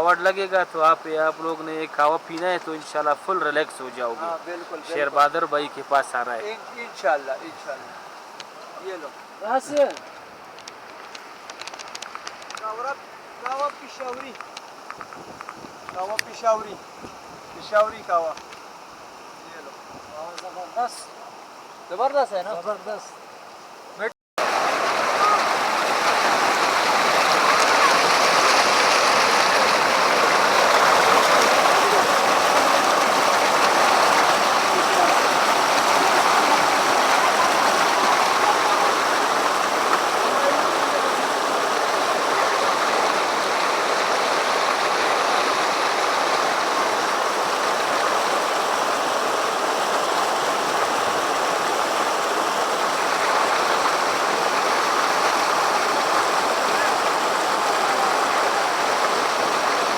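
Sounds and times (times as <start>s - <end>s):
waterfall rushing: 0.0s - 10.4s, 24.4s - 59.9s.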